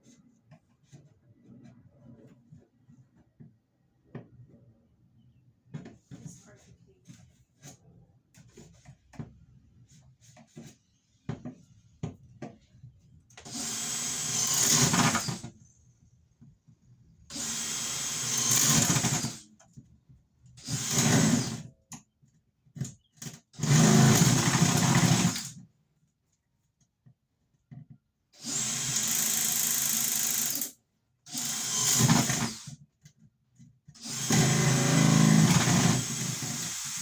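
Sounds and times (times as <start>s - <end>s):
power drill running: 13.4s - 15.5s, 17.3s - 19.4s, 20.6s - 21.7s, 23.6s - 25.5s, 28.4s - 30.7s, 31.3s - 32.7s, 34.0s - 37.0s.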